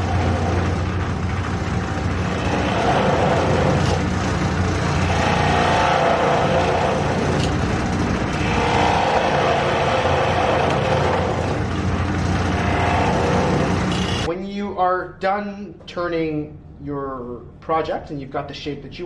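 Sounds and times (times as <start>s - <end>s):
turning tool cutting wood: 0.0s - 14.3s
wood lathe motor hum: 0.0s - 14.3s.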